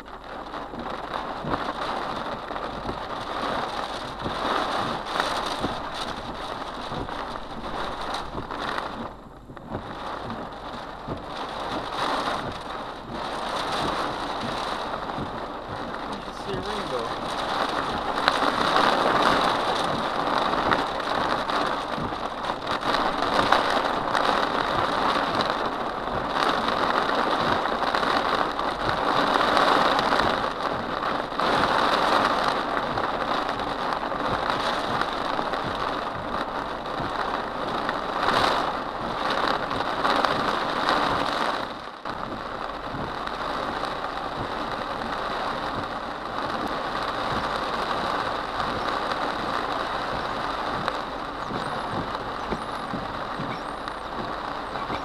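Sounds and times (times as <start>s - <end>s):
car road noise: 0.0s - 55.0s
heavy rain on car roof: 0.0s - 55.0s.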